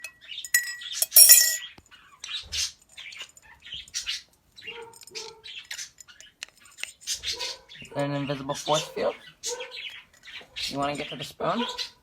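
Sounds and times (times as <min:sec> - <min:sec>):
light clinks: 0:00.0 - 0:01.7
parrot calls and chirps: 0:00.0 - 0:12.0.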